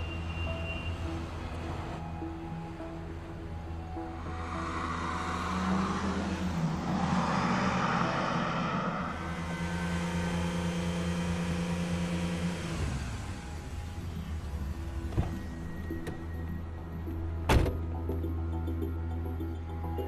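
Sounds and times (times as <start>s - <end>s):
sports car engine: 3.5s - 18.2s.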